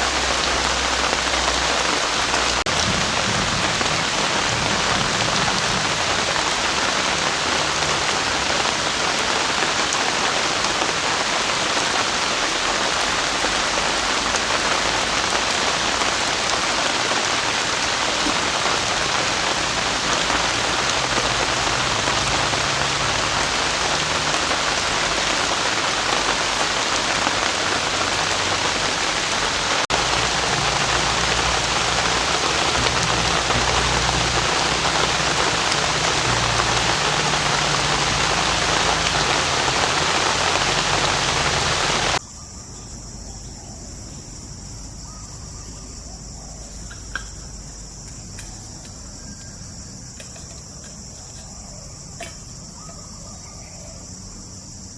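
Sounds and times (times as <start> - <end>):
heavy rain pouring: 0.0 - 42.2.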